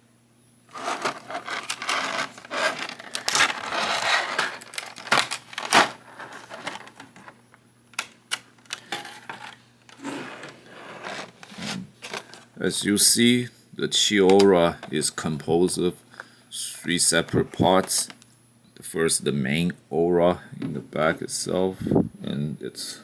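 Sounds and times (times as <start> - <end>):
hard plastic pieces clicking: 0.7 - 7.3, 7.9 - 9.6
plastic packaging crinkling: 0.7 - 7.4, 11.0 - 12.6.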